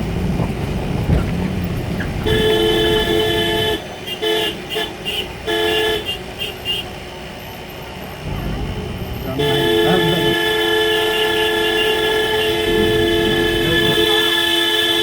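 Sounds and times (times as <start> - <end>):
low engine rumble: 0.0 - 3.7, 7.1 - 14.6
truck horn honking: 2.1 - 7.0, 9.2 - 15.0.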